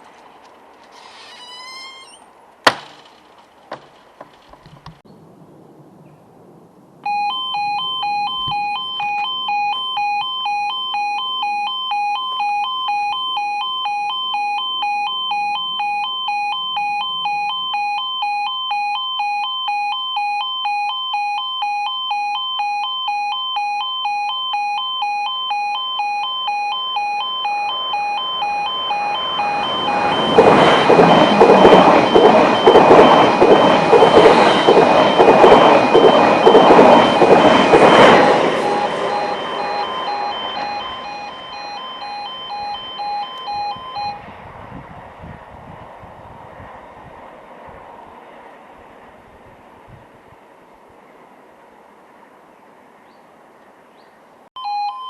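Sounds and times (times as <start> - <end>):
level crossing alarm pulsing: 7.0 - 44.3, 54.6 - 55.0
train passing loudly: 27.7 - 53.0.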